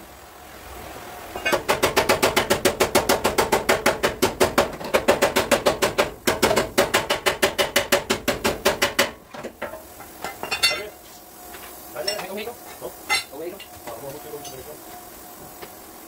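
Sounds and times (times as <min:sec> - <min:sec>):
hammer tapping sheet metal: 0:01.4 - 0:09.8.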